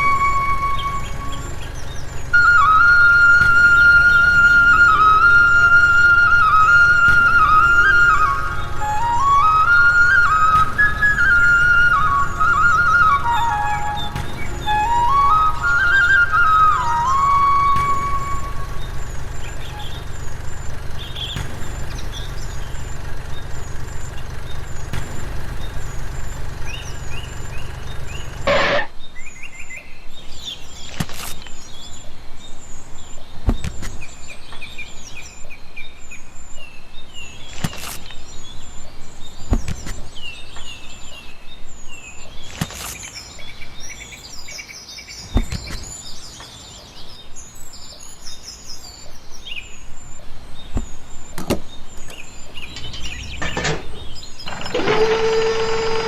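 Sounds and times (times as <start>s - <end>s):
low hum: 0.0s - 29.0s
birds chirping: 0.0s - 56.0s.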